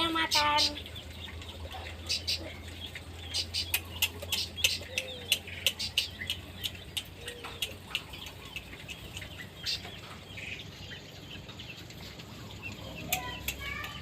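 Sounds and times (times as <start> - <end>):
small birds chirping: 0.0 - 14.0
sharp ticks and clicks: 2.7 - 10.1, 12.6 - 14.0.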